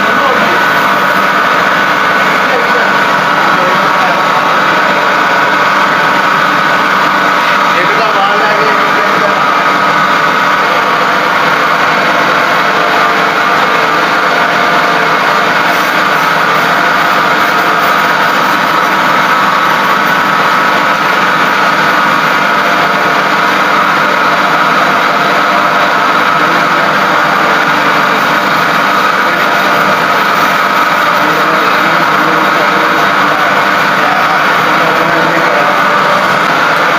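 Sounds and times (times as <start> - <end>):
machine droning: 0.0 - 36.9.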